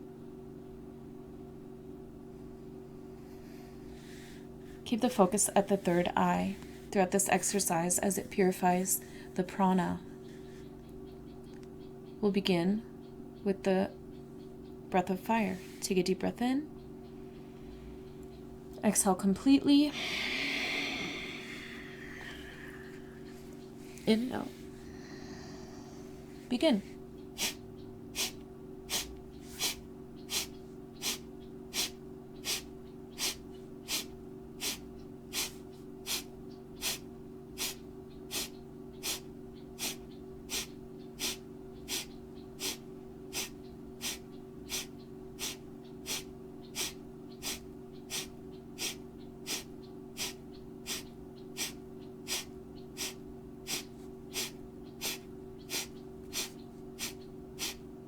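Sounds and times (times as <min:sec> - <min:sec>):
quiet inhalations: 0:03.0 - 0:04.9, 0:08.9 - 0:09.4, 0:19.9 - 0:26.5, 0:28.2 - 0:57.9
forceful nasal exhalations: 0:19.9 - 0:23.1, 0:28.2 - 0:39.2, 0:39.8 - 0:57.8.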